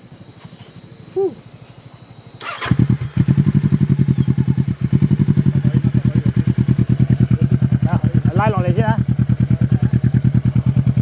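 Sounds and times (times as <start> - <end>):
crickets chirping: 0.0 - 11.0
motorcycle engine idling: 0.0 - 11.0.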